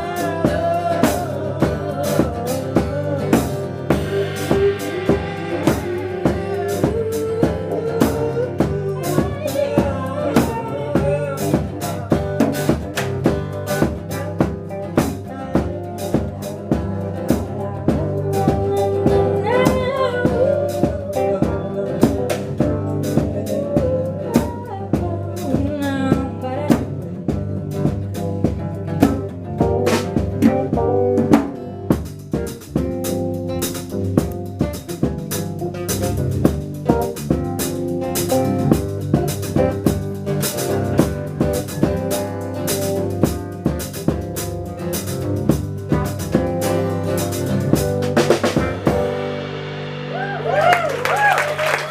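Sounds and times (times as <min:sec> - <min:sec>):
bass line: 0:00.0 - 0:51.9
drum kit beat: 0:00.0 - 0:51.9.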